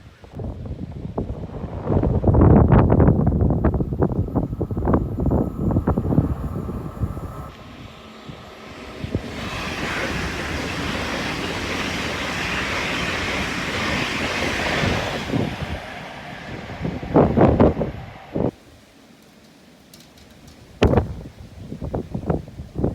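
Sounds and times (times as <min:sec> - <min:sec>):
low rumble: 0:00.6 - 0:07.5.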